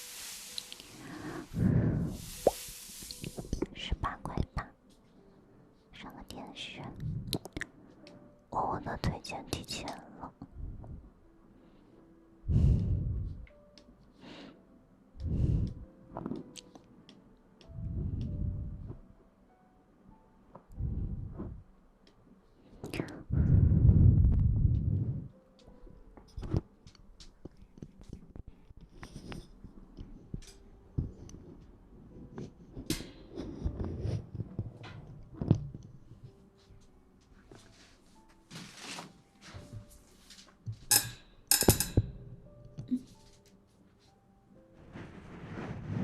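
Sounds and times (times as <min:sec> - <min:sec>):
muffled low bursts: 0:23.3 - 0:25.4
soft rustling and scratching: 0:26.3 - 0:40.9, 0:44.8 - 0:46.0.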